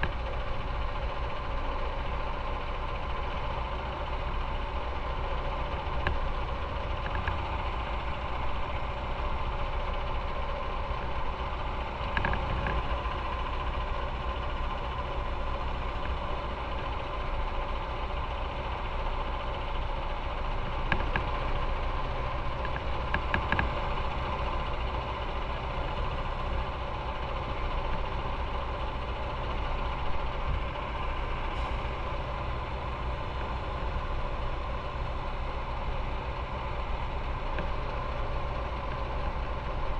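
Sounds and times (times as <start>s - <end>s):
motorcycle engine running: 20.2s - 39.9s.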